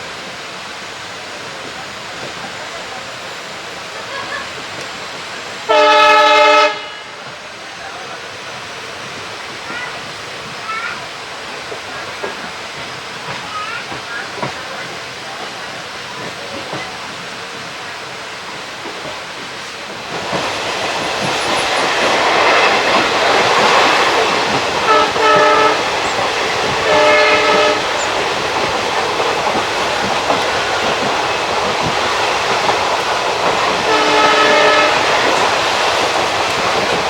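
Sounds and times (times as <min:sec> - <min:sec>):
train wheel and coach noise: 0:00.0 - 0:37.0
train horn blasts: 0:05.7 - 0:07.2, 0:24.9 - 0:25.9, 0:26.8 - 0:28.0, 0:33.9 - 0:35.2.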